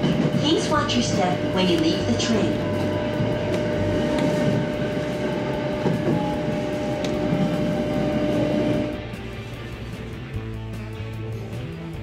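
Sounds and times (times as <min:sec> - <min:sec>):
train running hum: 0:00.0 - 0:12.0
sharp clicks of train: 0:05.7 - 0:06.4.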